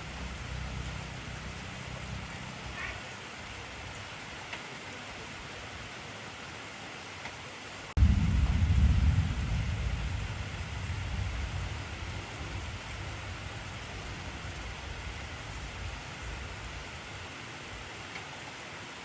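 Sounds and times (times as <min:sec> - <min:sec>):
heavy rain hissing: 0:00.0 - 0:19.0
deep thunderclap rumbling: 0:08.0 - 0:17.3.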